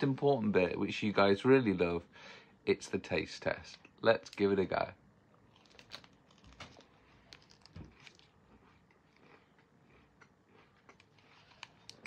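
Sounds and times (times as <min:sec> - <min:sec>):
chewing and crunching cereal bar: 0:05.3 - 0:12.0.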